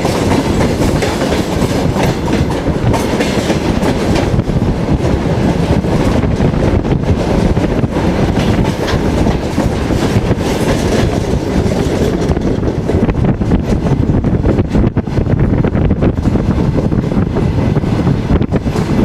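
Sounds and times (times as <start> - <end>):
wheels clicking over rail joints: 0.0 - 14.7
train coach rumbling: 0.0 - 19.0.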